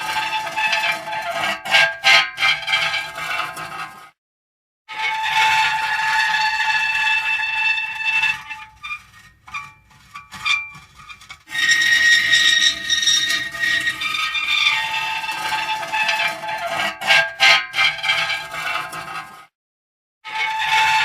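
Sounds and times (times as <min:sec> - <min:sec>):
metal creaking and squealing: 0:00.0 - 0:04.0, 0:04.9 - 0:19.4, 0:20.3 - 0:21.0.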